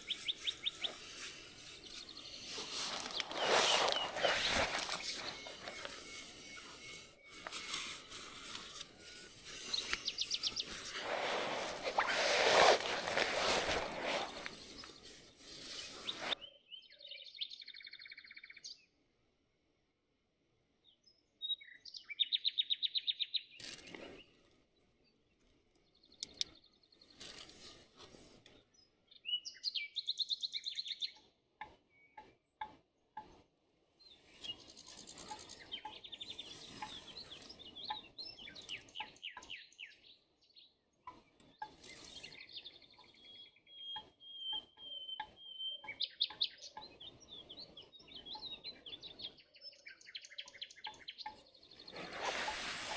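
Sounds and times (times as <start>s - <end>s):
rustling noise: 0.0s - 16.4s, 51.9s - 52.9s
small birds trilling: 0.0s - 16.4s.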